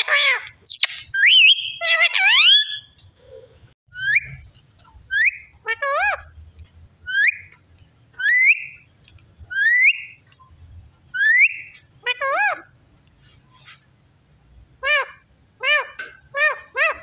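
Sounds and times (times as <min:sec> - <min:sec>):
parrot wavering call: 0:00.0 - 0:02.9
parrot upward-sweeping whistles: 0:00.7 - 0:02.9.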